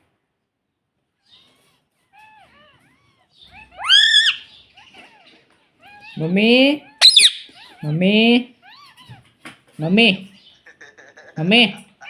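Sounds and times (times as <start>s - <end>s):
parrot chirping softly: 0.6s - 12.0s
loud parrot call: 3.5s - 4.6s, 7.0s - 7.5s.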